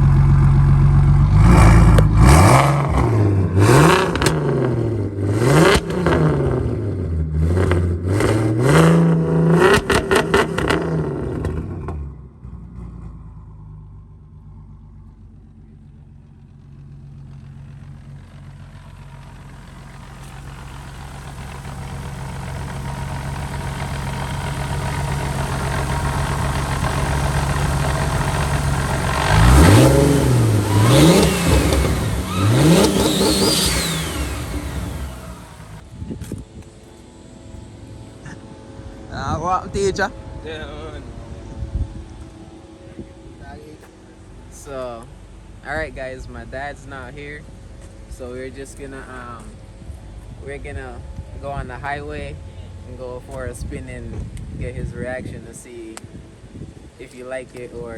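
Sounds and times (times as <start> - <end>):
car engine accelerating: 0.0 - 57.9
road and wind noise: 0.0 - 57.9.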